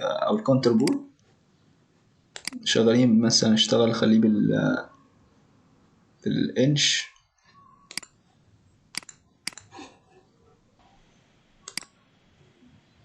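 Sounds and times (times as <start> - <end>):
computer mouse clicking: 2.3 - 2.6, 7.9 - 8.2, 8.9 - 9.9, 11.6 - 12.0.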